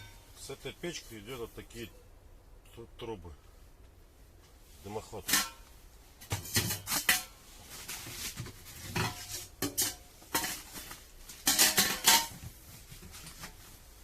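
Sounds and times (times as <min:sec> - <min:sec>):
metal pipes clanking: 0:00.0 - 0:00.5, 0:05.1 - 0:08.0, 0:08.8 - 0:12.6.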